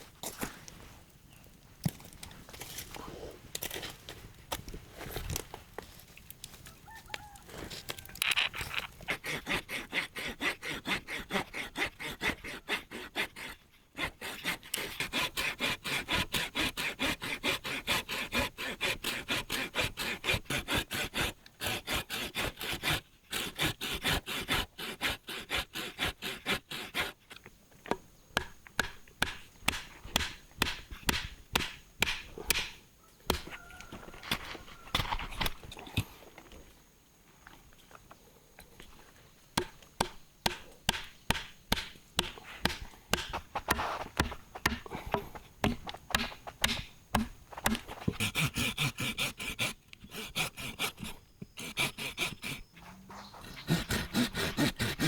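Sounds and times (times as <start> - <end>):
rapid scraping and knocking strokes: 40.0 - 55.0.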